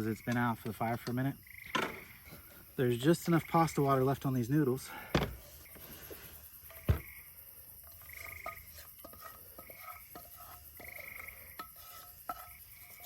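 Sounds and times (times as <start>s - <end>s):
knock: 5.1s - 5.4s, 6.9s - 7.1s.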